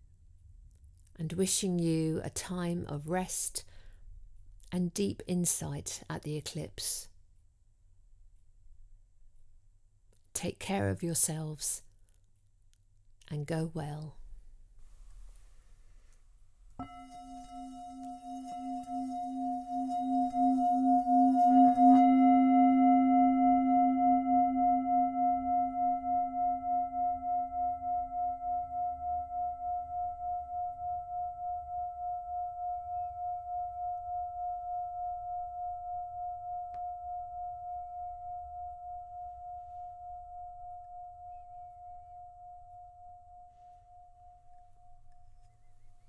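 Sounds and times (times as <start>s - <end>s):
singing bowl ringing: 16.8s - 45.2s.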